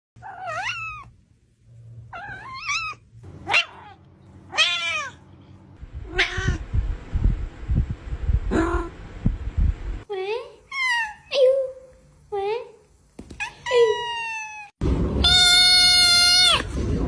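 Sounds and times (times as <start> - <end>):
cat meowing: 0.2 - 1.1, 2.2 - 5.2, 6.0 - 6.6, 13.4 - 16.7
low bumping and rumble: 5.8 - 10.0.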